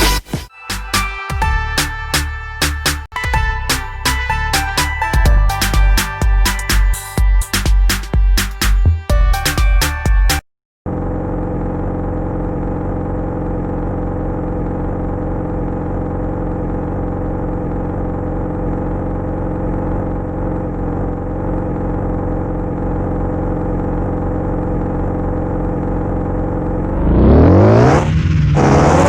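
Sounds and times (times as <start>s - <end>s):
motorcycle engine running: 10.9s - 29.0s.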